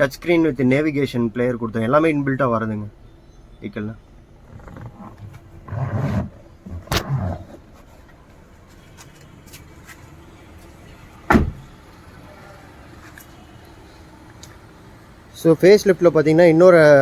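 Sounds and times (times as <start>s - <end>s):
car door shutting: 4.4s - 8.2s, 10.6s - 13.4s.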